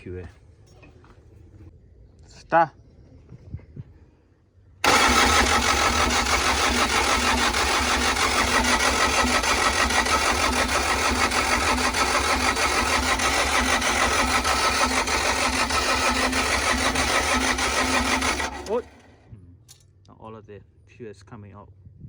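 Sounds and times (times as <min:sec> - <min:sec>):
diesel engine cranked by starter motor: 0:04.8 - 0:19.3.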